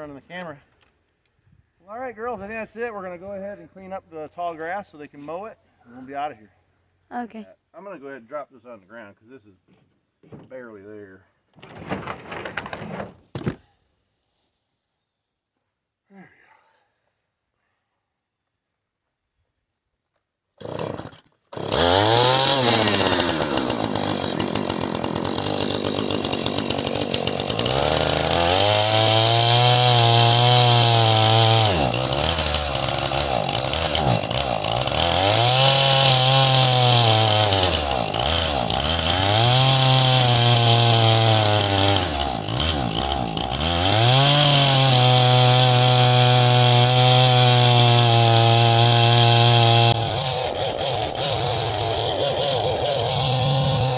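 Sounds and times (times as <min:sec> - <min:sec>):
chainsaw revving and cutting: 0:20.6 - 0:53.9.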